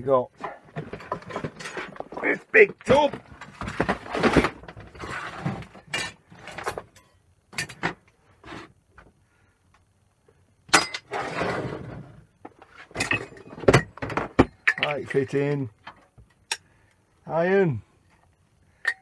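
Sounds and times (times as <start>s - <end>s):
scrap parts clattering in a tub: 0.4s - 7.0s, 10.8s - 12.2s, 12.8s - 15.3s.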